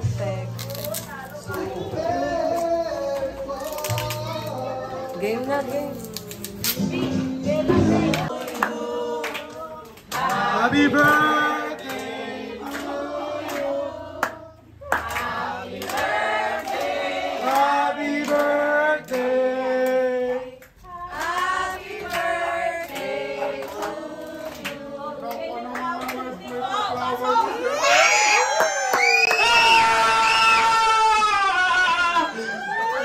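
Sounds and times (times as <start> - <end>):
group of people singing: 1.4 - 27.2
hands clapping: 8.1 - 18.5, 19.1 - 20.0, 20.6 - 22.3, 22.9 - 26.6, 28.5 - 29.8.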